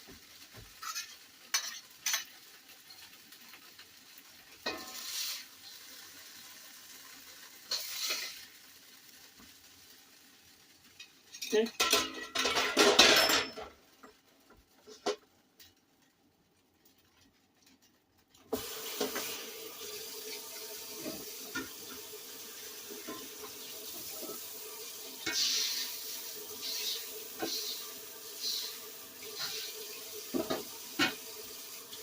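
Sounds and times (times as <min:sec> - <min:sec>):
kitchenware clanking: 0:00.7 - 0:03.0, 0:04.6 - 0:05.1, 0:11.0 - 0:14.2, 0:18.5 - 0:19.4, 0:20.2 - 0:22.1, 0:25.2 - 0:32.0.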